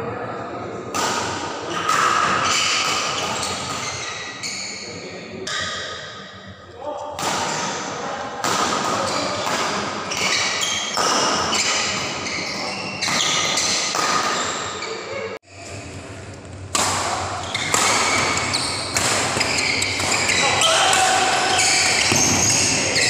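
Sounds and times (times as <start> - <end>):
rackets hitting shuttlecock: 0.9 - 4.0, 8.4 - 12.1, 13.0 - 14.7, 16.4 - 23.0.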